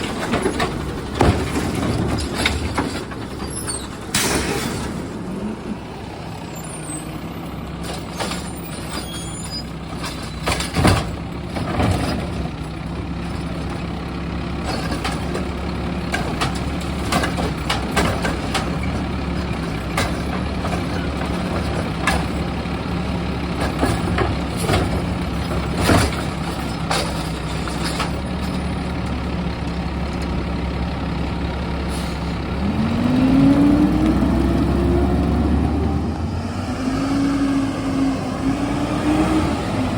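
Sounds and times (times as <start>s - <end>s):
sharp knocks and bangs: 0.0s - 3.4s
garbage truck engine idling: 0.0s - 36.3s.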